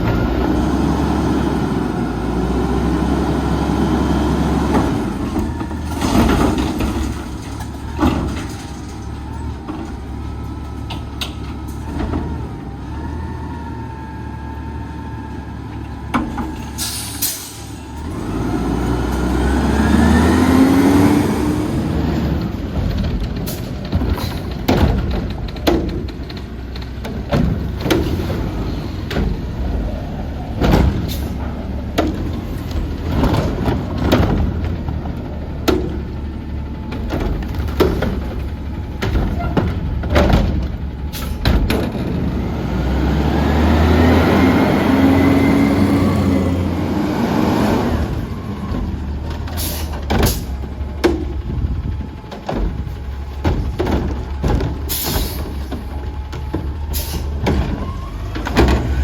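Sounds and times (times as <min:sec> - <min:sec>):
garbage truck diesel engine: 0:00.0 - 0:59.0
metallic clanks and knocks: 0:48.6 - 0:59.0.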